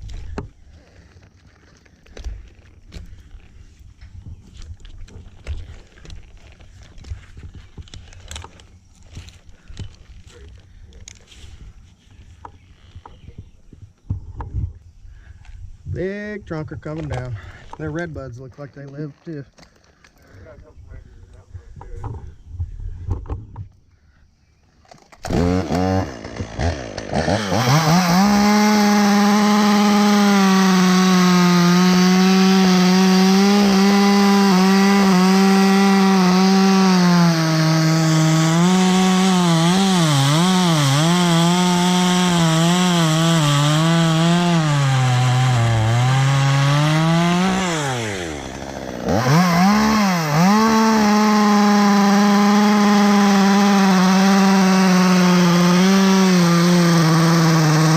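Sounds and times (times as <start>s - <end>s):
chainsaw cutting wood: 24.9s - 57.9s.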